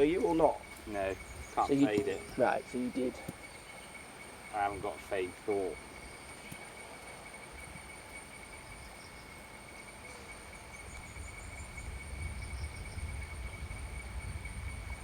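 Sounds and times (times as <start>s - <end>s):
wind rumble on microphone: 0.0s - 2.6s, 10.7s - 15.0s
insects whining: 0.0s - 15.0s.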